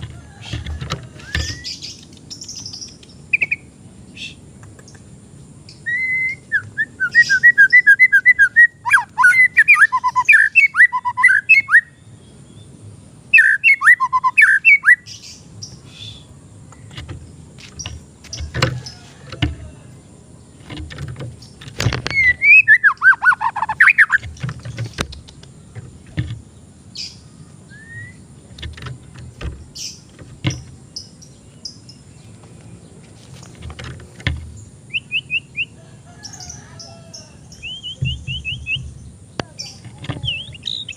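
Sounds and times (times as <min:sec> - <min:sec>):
bird singing whistled notes: 0:01.2 - 0:04.4, 0:05.7 - 0:12.7, 0:13.3 - 0:16.3, 0:22.0 - 0:24.4, 0:26.9 - 0:28.3, 0:34.9 - 0:35.7, 0:36.3 - 0:40.9
sharp clicks or knocks: 0:16.7 - 0:19.7, 0:20.6 - 0:22.4, 0:24.1 - 0:26.5, 0:28.5 - 0:30.8, 0:33.4 - 0:34.6.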